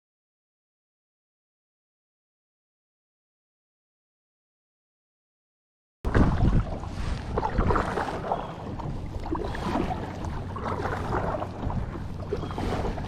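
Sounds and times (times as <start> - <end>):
water sounds: 6.1 - 13.0
wind rumbling on microphone: 6.1 - 13.0.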